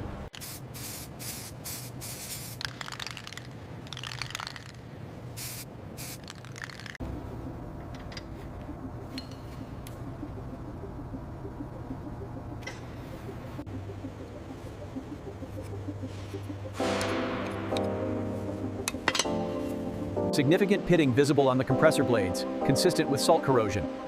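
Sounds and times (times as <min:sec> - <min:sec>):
steady low hum: 0:00.0 - 0:24.0
spraying hiss: 0:00.4 - 0:04.6, 0:05.4 - 0:06.6.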